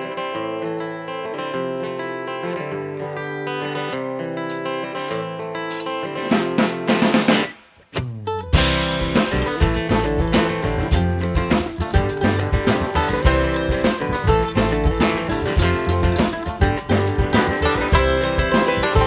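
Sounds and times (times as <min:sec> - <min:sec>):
plucked strings: 0:00.8 - 0:19.0
drums: 0:03.9 - 0:19.0
acoustic guitar chords: 0:08.2 - 0:19.0
upright bass: 0:08.4 - 0:19.0.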